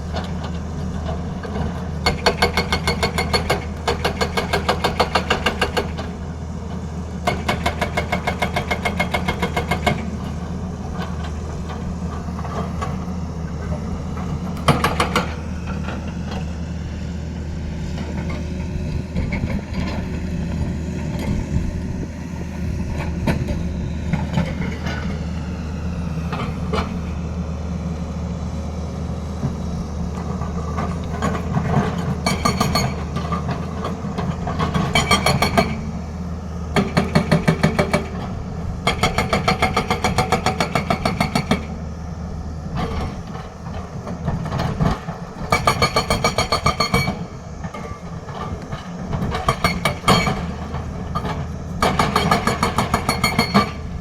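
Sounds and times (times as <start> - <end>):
diesel engine running: 0.0 - 54.0
hydraulic breaker hammer pounding: 2.0 - 6.1, 14.6 - 16.0, 31.2 - 35.9, 36.7 - 41.7, 43.8 - 54.0.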